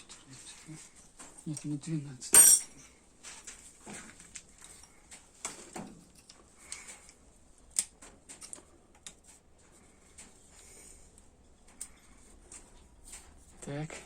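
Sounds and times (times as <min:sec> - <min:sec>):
hand tools clicking and clinking: 0:02.4 - 0:02.7.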